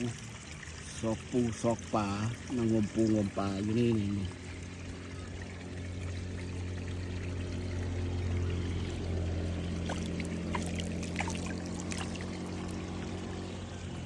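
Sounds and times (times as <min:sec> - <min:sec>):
water pouring: 0:00.0 - 0:14.0
low hum: 0:03.6 - 0:14.0.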